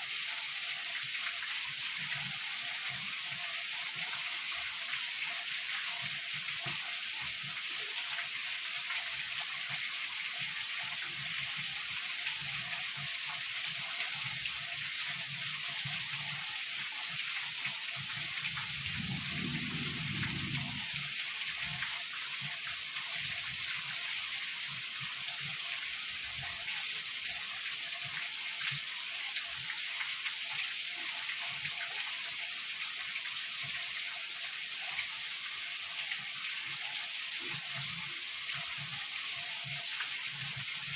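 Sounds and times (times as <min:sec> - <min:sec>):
heavy rain falling: 0:18.4 - 0:21.9
low rumble of thunder: 0:18.6 - 0:21.2.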